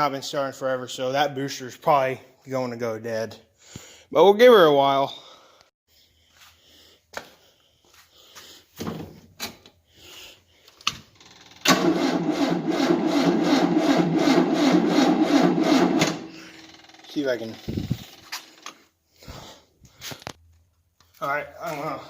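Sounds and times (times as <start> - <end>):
engine cranking without starting: 10.9 - 18.9.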